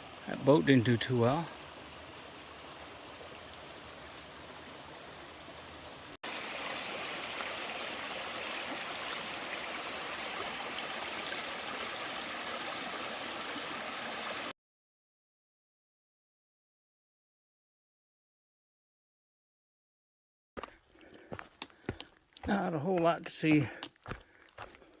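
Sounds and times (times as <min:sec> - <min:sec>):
stream flowing over rocks: 0:00.0 - 0:14.5.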